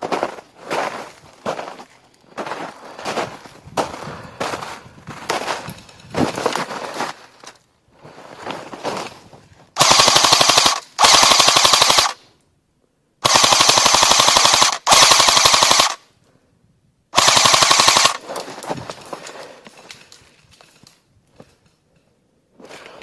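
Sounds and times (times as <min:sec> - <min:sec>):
airsoft gun firing bursts: 0:09.8 - 0:12.2, 0:13.2 - 0:16.0, 0:17.2 - 0:18.4.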